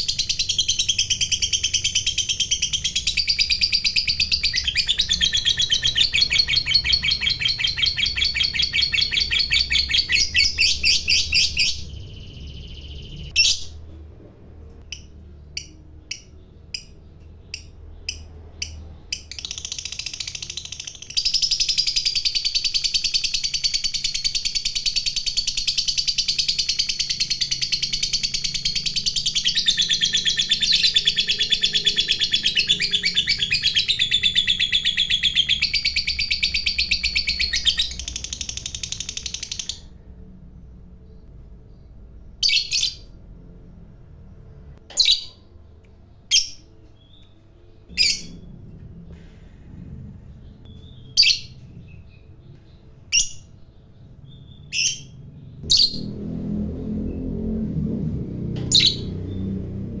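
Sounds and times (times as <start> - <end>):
lovebird chattering song: 0.0 - 13.8, 14.9 - 39.9.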